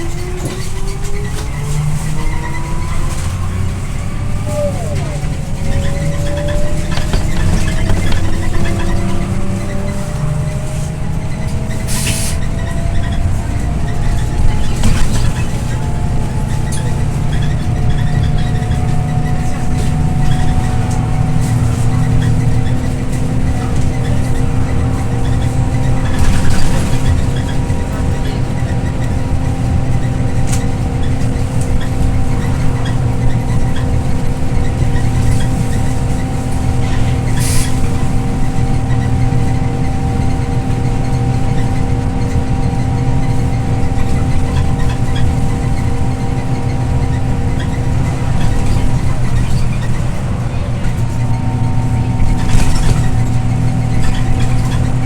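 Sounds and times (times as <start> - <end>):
bus engine and road rumble: 0.0 - 55.0
constant whine: 0.0 - 55.0
short air hisses: 11.9 - 12.4.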